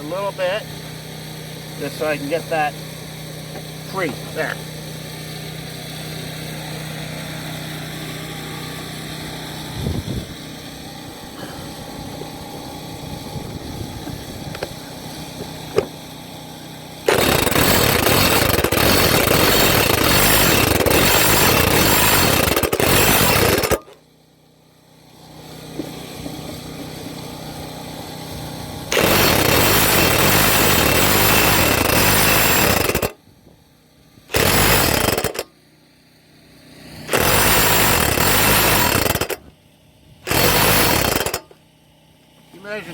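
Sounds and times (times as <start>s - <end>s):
impact wrench hammering: 17.1s - 24.0s, 28.9s - 33.2s, 34.3s - 35.5s, 37.1s - 39.4s, 40.3s - 41.6s.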